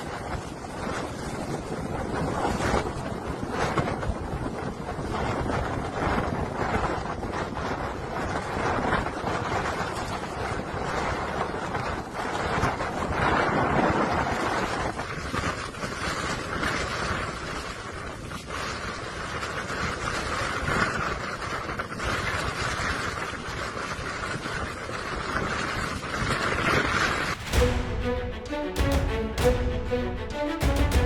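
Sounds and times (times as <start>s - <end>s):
storm wind blowing: 0.0s - 19.4s, 26.0s - 31.0s
wind rumbling on microphone: 0.0s - 28.1s.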